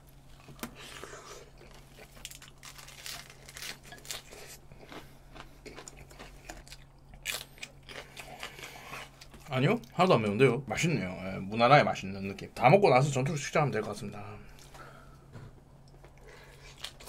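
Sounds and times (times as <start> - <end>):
crunching and chewing food: 0.1 - 10.1, 15.8 - 17.0.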